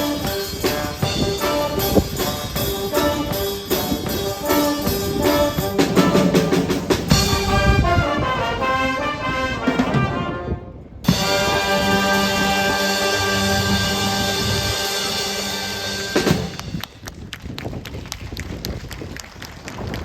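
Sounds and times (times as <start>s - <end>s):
brass music with steady beat: 0.0s - 16.8s.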